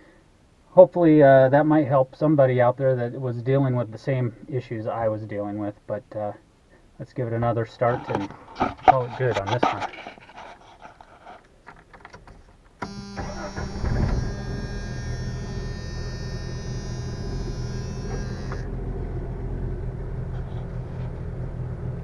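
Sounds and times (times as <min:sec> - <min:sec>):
engine starter cranking: 0:12.8 - 0:18.6
high steady whine: 0:12.8 - 0:19.2
car engine idling: 0:12.9 - 0:22.0.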